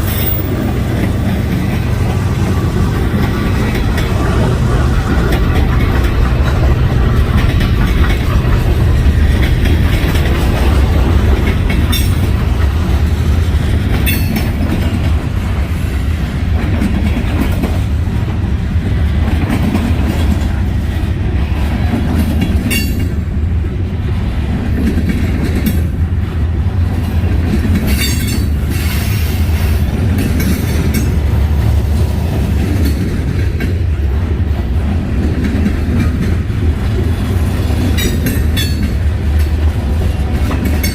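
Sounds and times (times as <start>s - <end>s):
train wheel squeals: 0.0s - 1.2s, 27.8s - 29.9s
freight train wheels rumbling: 0.0s - 40.9s.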